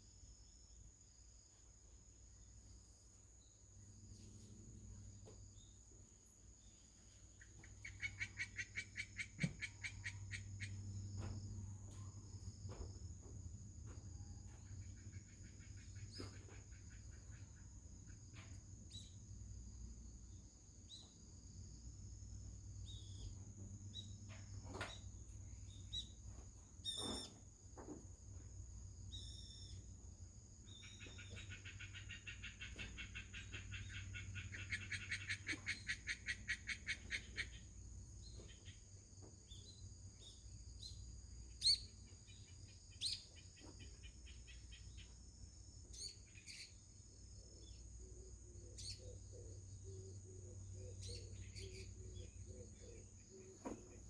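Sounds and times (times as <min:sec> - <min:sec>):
bird chirps: 0:06.6 - 0:12.1, 0:14.4 - 0:17.7, 0:22.8 - 0:26.2, 0:26.8 - 0:27.4, 0:29.1 - 0:29.9, 0:30.6 - 0:45.2, 0:45.9 - 0:54.0.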